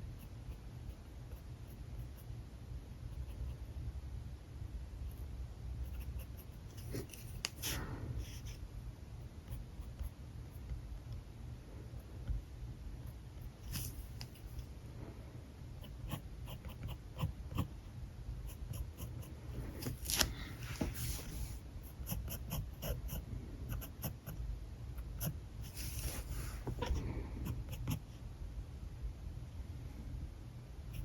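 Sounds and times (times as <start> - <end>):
steady low hum: 0.0 - 31.0
marker scratching on paper: 20.7 - 24.4, 25.2 - 28.1.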